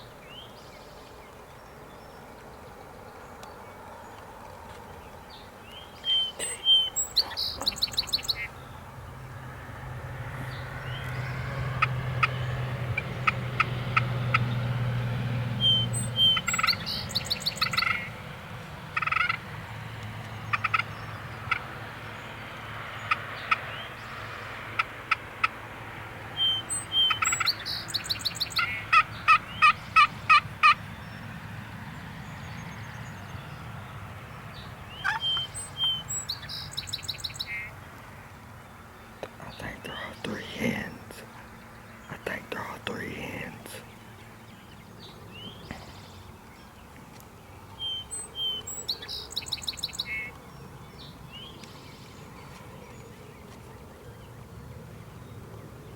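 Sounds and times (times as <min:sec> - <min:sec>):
songbirds: 0:00.0 - 0:55.9
turkeys gobbling: 0:19.0 - 0:19.4, 0:28.6 - 0:30.8, 0:35.0 - 0:35.5.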